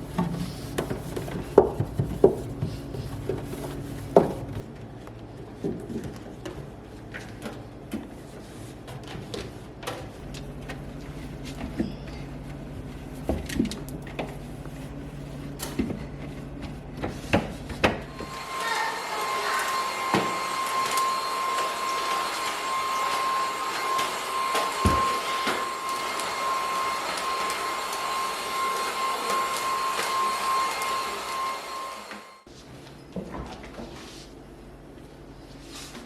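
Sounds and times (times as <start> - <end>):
vacuum cleaner running: 17.8 - 32.5.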